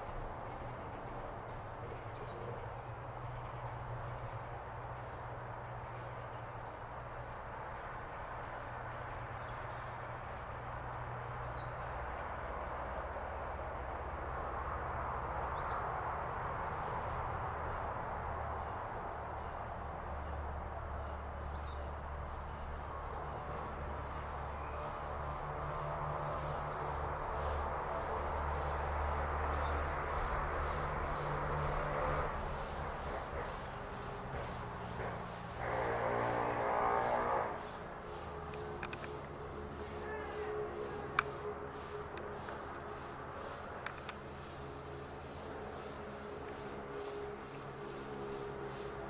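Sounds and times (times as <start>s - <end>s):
distant engine rumble: 0.0s - 49.0s
broad hiss: 41.3s - 49.0s.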